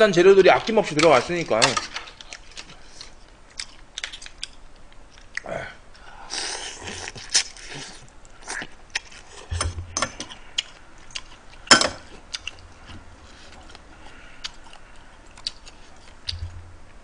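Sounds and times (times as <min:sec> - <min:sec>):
wet chewing: 0:01.0 - 0:05.5, 0:06.3 - 0:17.0
lip smacks and clicks: 0:02.2 - 0:05.4, 0:14.4 - 0:16.6.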